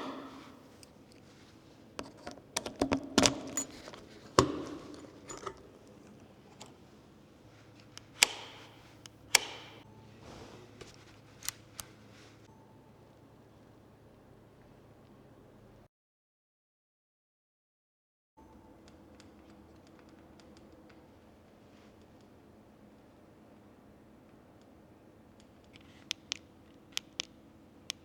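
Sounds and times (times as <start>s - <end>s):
sharp clicks and knocks: 2.0s - 6.8s, 7.8s - 9.8s.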